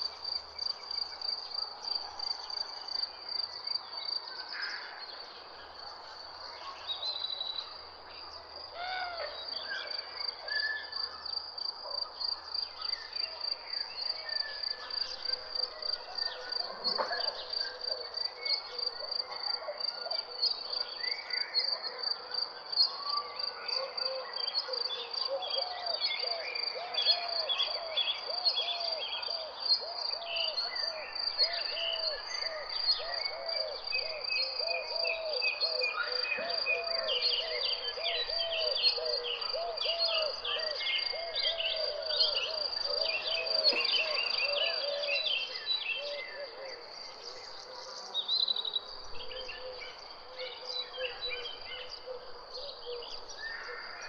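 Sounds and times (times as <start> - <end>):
birds chirping and calling: 31.4 - 53.8.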